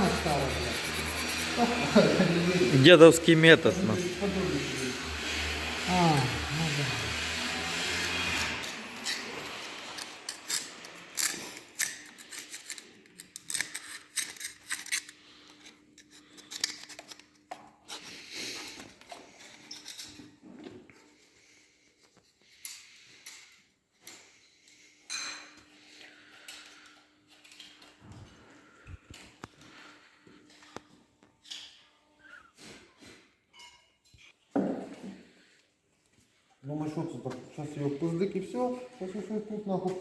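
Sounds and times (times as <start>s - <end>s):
metallic clicks of hand tools: 8.4s - 17.4s.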